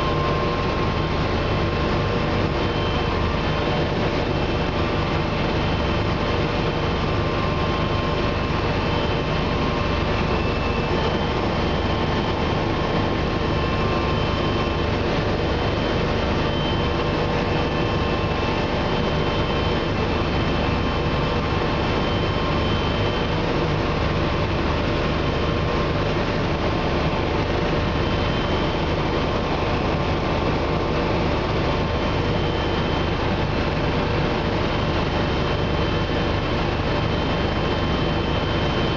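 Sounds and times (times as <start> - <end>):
helicopter rotor and engine drone: 0.0 - 38.9.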